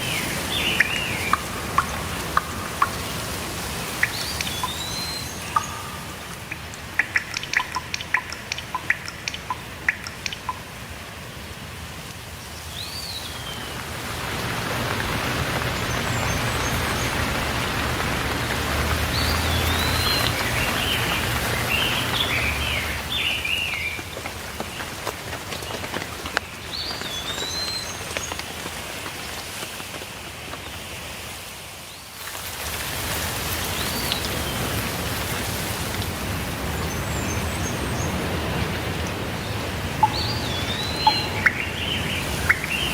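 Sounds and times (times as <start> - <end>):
birds chirping: 0.0 - 10.7, 12.6 - 25.0, 36.6 - 42.9
loud water drips: 0.0 - 29.7, 32.2 - 42.9
steady rainfall: 0.0 - 42.9.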